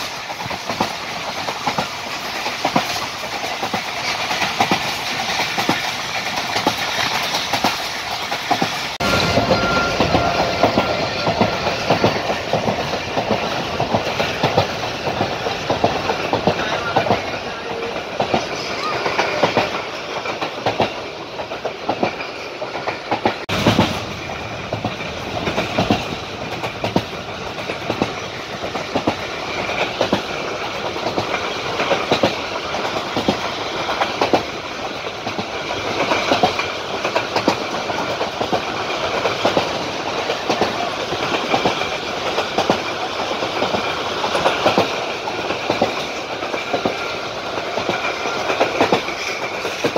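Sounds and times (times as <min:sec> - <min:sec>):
train clatter: 0:00.0 - 0:49.9
train rumbling and rattling: 0:00.0 - 0:49.9
train wheels clicking over rail joints: 0:00.0 - 0:49.9.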